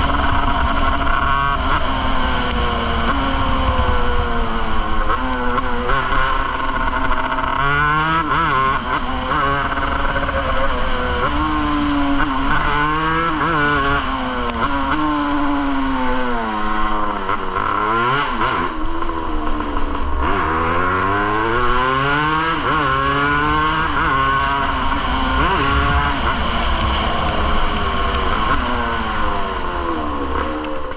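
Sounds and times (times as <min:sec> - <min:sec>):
wind rumble on microphone: 0:00.0 - 0:07.4, 0:23.4 - 0:30.9
motorcycle engine revving: 0:00.0 - 0:30.9.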